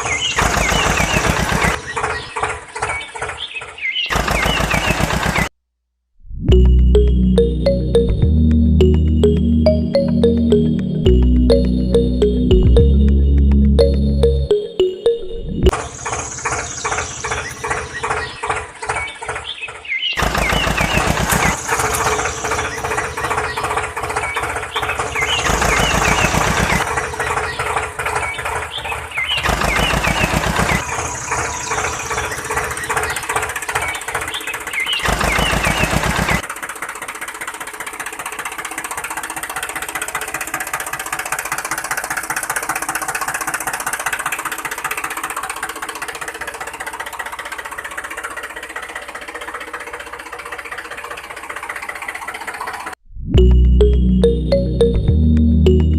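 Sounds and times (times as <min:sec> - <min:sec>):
small engine knocking: 0:00.0 - 0:05.5, 0:15.7 - 0:53.0.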